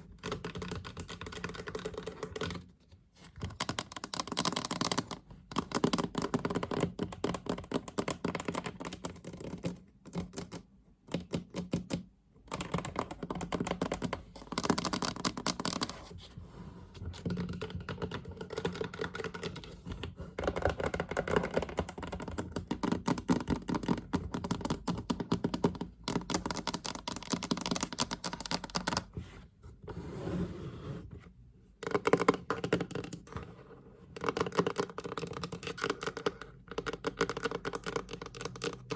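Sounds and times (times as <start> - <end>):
fast tapping on a chest: 3.4 - 15.9, 17.1 - 29.1, 34.2 - 38.9.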